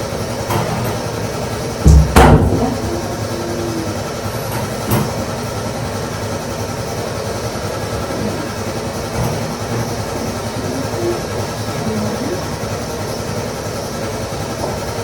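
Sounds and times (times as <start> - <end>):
knocks: 1.8 - 3.1.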